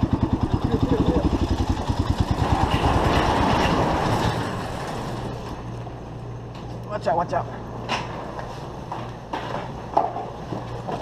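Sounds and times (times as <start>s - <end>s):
motorcycle engine running: 0.0s - 5.7s
steady low hum: 0.0s - 11.0s.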